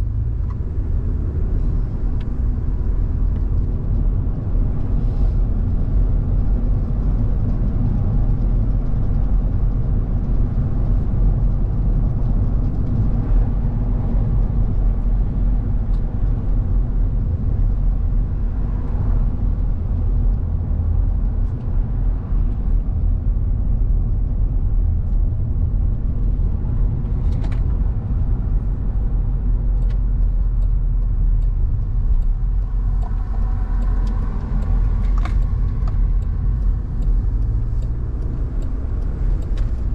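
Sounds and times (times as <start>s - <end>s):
car driving rumble: 0.0s - 39.9s
faint ticks: 29.7s - 39.9s.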